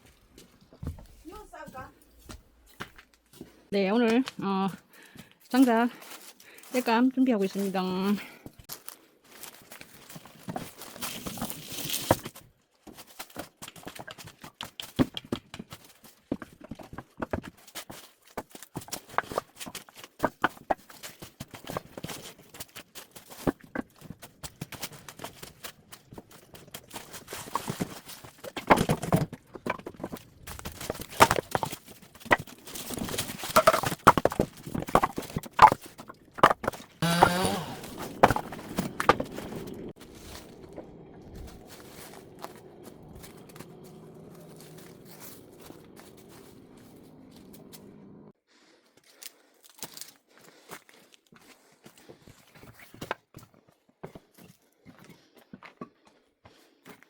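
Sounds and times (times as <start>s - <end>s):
wooden logs knocking together: 0.7s - 1.2s, 13.0s - 47.9s.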